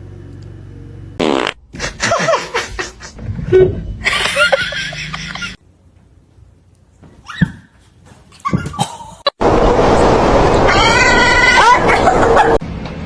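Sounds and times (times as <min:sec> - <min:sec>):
buzzing fart sound: 0:01.2 - 0:02.0
people laughing: 0:01.8 - 0:03.2, 0:04.0 - 0:05.6.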